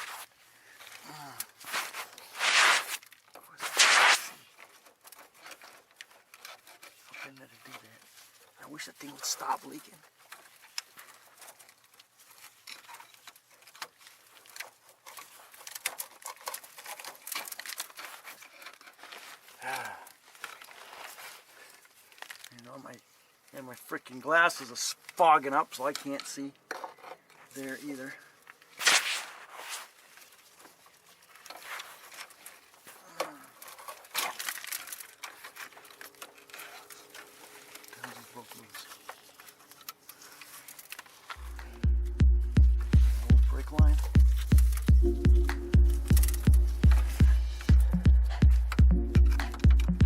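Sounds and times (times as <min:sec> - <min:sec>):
hands rustling: 0:00.0 - 0:06.0, 0:28.6 - 0:50.0.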